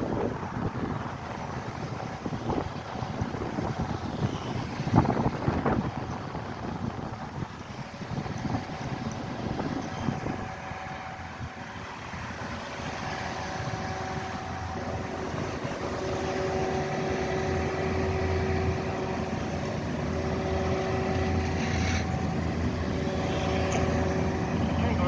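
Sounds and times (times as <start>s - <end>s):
engine hum: 0.0s - 25.0s
short scrape: 21.4s - 22.2s.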